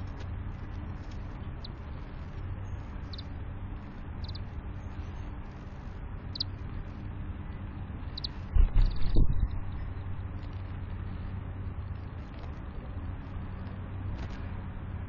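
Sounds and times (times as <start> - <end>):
steady low rumble: 0.0 - 15.0
birds chirping: 1.1 - 7.0, 8.0 - 10.5.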